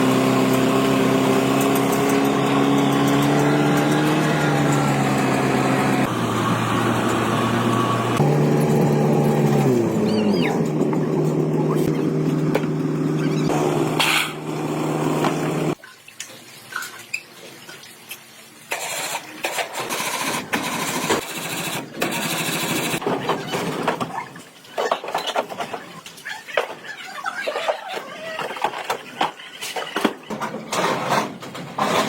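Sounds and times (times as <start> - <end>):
engine running steadily: 0.0 - 15.8.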